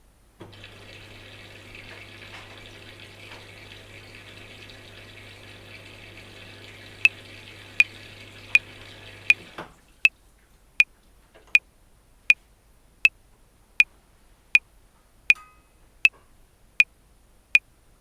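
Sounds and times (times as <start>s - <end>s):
washing machine running: 0.4s - 10.0s.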